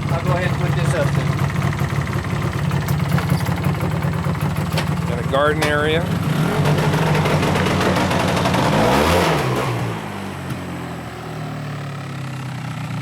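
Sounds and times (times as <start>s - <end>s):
small engine running: 0.0s - 9.4s.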